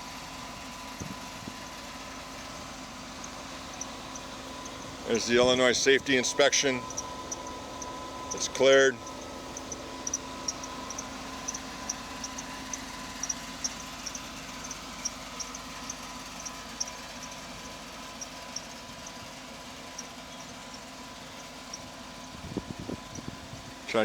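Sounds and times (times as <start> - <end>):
truck engine idling: 0.0 - 24.0
faint high-pitched chirps: 1.6 - 19.2.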